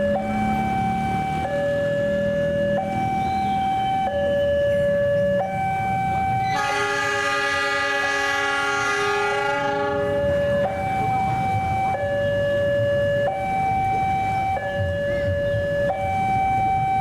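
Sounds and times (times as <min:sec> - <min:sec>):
two-tone level crossing alarm: 0:00.0 - 0:17.0
locomotive horn blowing: 0:06.4 - 0:10.4.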